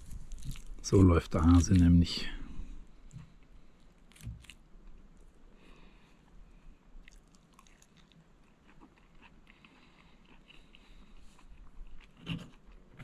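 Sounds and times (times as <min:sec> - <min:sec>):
chewing food: 0:00.0 - 0:00.8, 0:03.0 - 0:05.4, 0:06.9 - 0:13.0.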